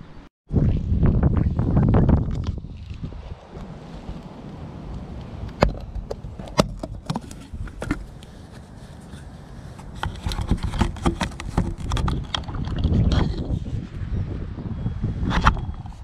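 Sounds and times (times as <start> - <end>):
wind rumble on microphone: 0.0 - 16.0
plastic clicks and knocks: 10.0 - 13.0.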